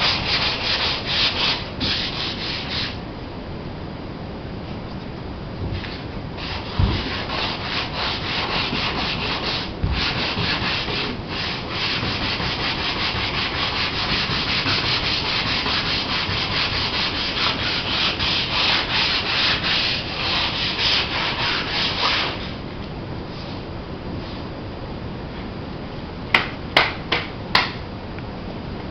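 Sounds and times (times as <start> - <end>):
sandpaper scrubbing on fiberglass: 0.0 - 3.0, 5.8 - 22.6.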